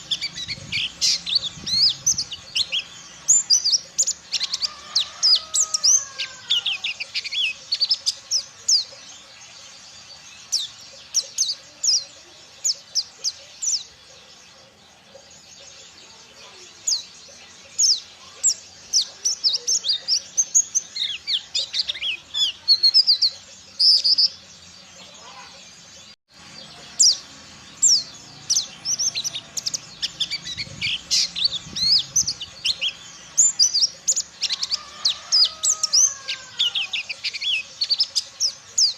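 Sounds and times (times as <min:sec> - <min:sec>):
bird chirping and twittering: 0:00.0 - 0:38.9.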